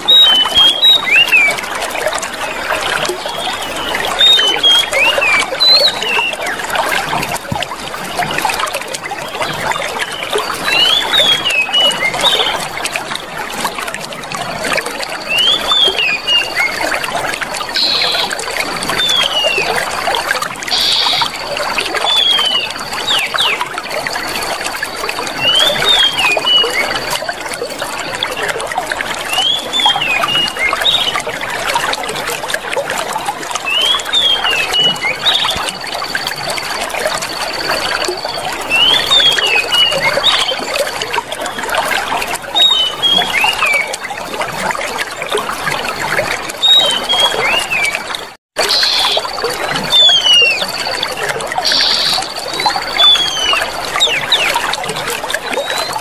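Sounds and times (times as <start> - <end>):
chirping bird calls: 0.0 - 1.6, 2.4 - 6.6, 17.6 - 19.8, 20.7 - 23.6, 42.6 - 43.9, 48.6 - 54.7
water flowing and trickling: 0.0 - 56.0.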